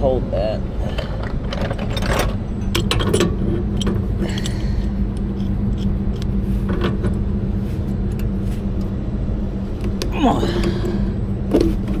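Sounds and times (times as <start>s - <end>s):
low mechanical hum: 0.0s - 12.0s
wrenches clinking on metal fittings: 0.9s - 5.9s.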